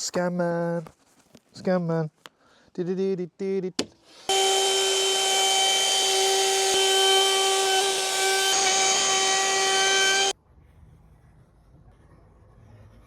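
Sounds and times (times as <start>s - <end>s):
electric router high-pitched whine: 4.3s - 10.4s.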